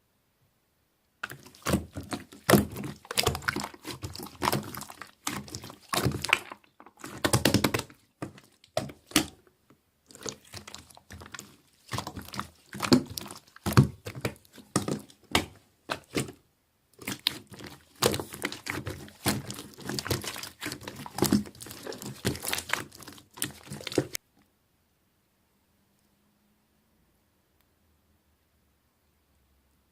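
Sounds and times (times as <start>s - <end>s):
slime squeezed with wet popping: 1.2s - 9.4s, 10.1s - 16.4s, 17.0s - 24.2s.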